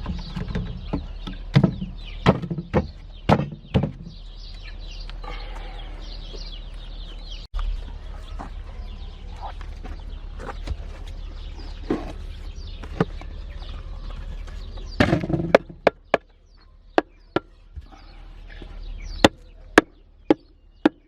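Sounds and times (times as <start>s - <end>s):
sharp knocks: 0.0s - 4.2s
chicks peeping: 0.0s - 21.0s.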